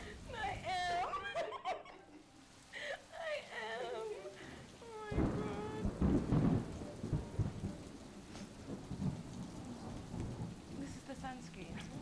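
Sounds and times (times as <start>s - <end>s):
steady rain: 0.0s - 12.0s
low thunder rumbles: 4.8s - 12.0s.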